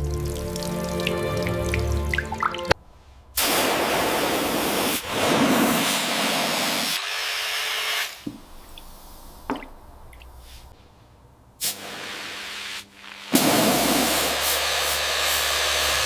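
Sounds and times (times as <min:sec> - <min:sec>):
hissing spray jet: 0:03.4 - 0:07.0, 0:11.6 - 0:16.0.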